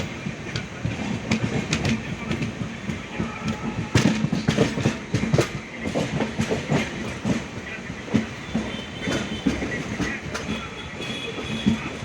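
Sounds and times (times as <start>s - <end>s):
train rumble: 0.0s - 12.0s
train wheels clattering: 0.0s - 12.0s.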